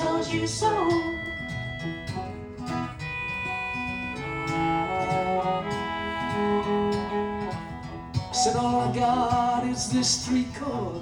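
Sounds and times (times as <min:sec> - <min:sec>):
strummed acoustic guitar: 0:00.0 - 0:11.0
melody of held notes: 0:00.9 - 0:08.3.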